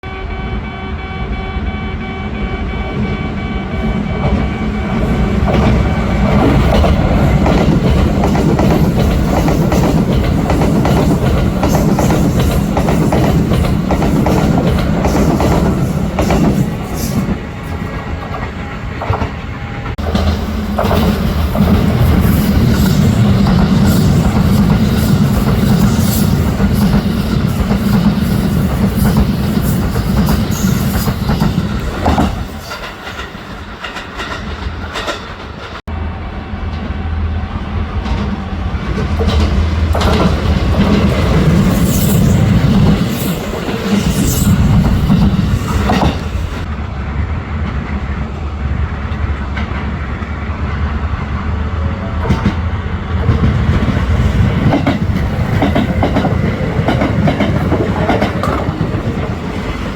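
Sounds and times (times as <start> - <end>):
electric train passing: 0.0 - 59.9
wheels clattering over rail joints: 5.5 - 35.8, 38.0 - 46.7.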